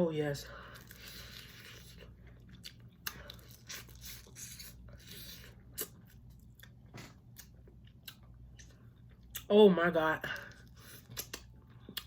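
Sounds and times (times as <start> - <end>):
soft wet chewing: 0.6 - 9.5, 10.4 - 12.0.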